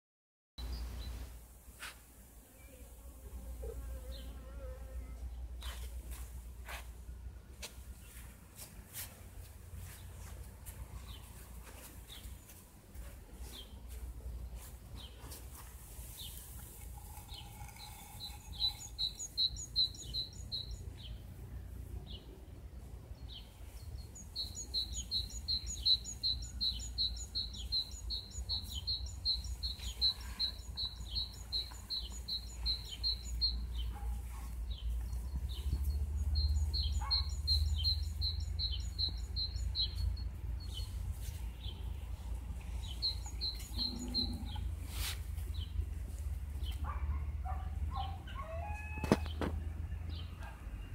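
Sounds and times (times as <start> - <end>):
songbird high chirps: 16.2 - 21.2, 23.2 - 44.7.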